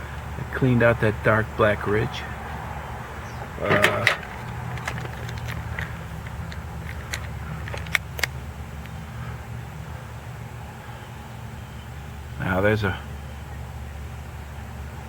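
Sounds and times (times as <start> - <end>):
light clicks and taps: 3.8 - 9.0
sharp ticks: 4.1 - 9.0.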